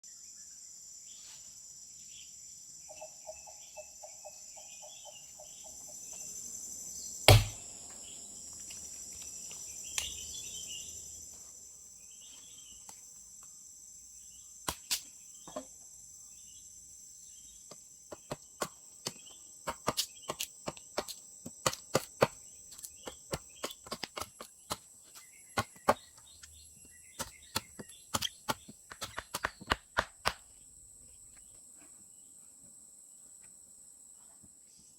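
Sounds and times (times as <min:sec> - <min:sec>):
faint bird chirps: 0:00.0 - 0:07.3, 0:24.6 - 0:29.8
insects chirping: 0:00.1 - 0:34.9
sharp knocks: 0:07.3 - 0:07.6.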